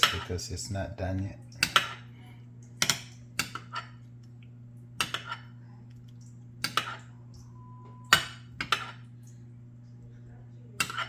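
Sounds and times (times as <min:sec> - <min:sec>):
steady low hum: 0:00.0 - 0:11.0
metal pan and utensils clinking: 0:10.8 - 0:11.0.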